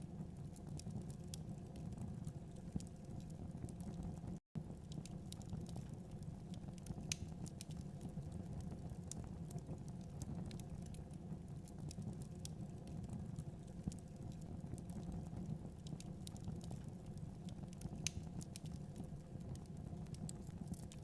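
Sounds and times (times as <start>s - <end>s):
low rumble of flames: 0.0s - 21.0s
wood fire popping and snapping: 0.2s - 21.0s.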